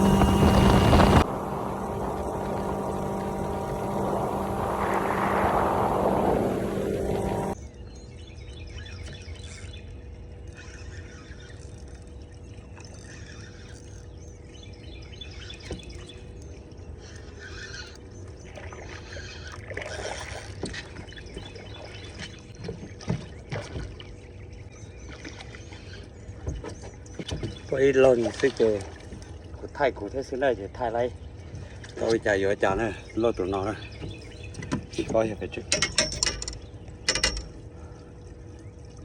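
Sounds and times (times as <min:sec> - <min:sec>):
steady hum: 0:00.0 - 0:07.6
water lapping against boat hull: 0:17.1 - 0:39.0.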